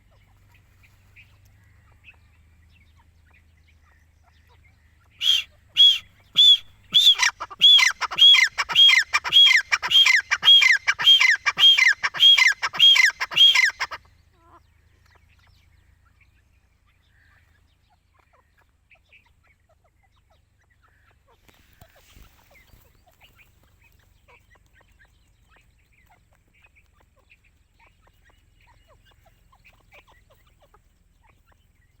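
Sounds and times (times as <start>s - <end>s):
faint bird chirps: 0.0s - 32.0s
bird calling: 4.0s - 14.1s.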